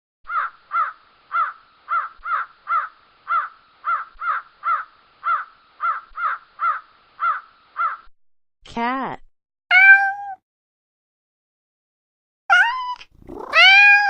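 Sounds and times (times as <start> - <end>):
crow cawing: 0.3 - 8.1.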